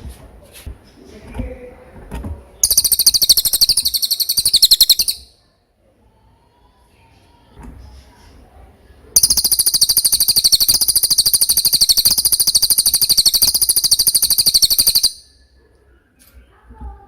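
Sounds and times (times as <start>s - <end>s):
bird chirps and high trill: 2.6s - 5.4s, 9.2s - 15.4s.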